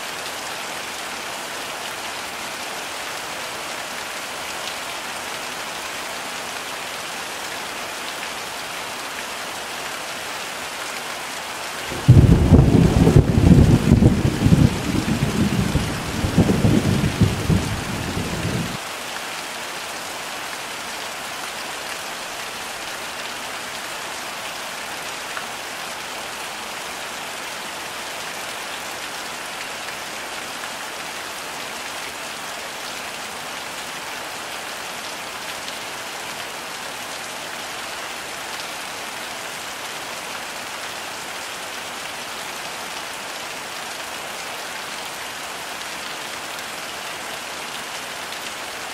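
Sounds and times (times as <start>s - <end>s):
heavy rain: 0.0s - 48.9s
thunder rumbling: 11.9s - 18.8s.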